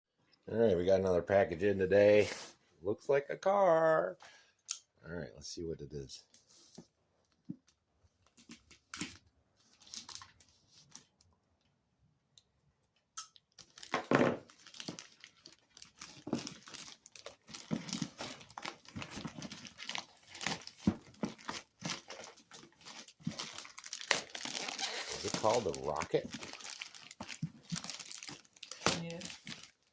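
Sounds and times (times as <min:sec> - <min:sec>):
packaging tearing and crinkling: 0:13.5 - 0:29.9.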